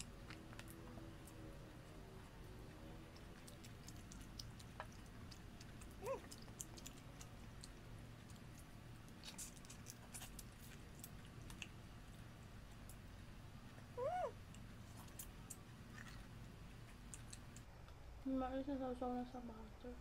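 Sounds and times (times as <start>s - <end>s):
lip smacks and chewing: 2.7s - 13.1s, 14.4s - 17.7s.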